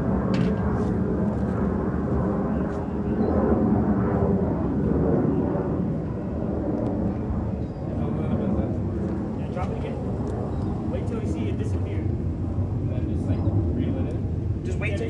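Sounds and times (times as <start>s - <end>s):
low rumbling noise: 8.6s - 14.9s.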